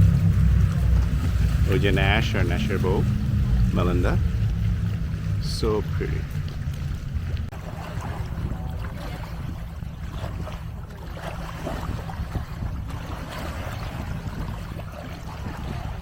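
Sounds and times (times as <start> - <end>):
lake water washing on shore: 0.0 - 16.0
wind buffeting microphone: 0.0 - 16.0.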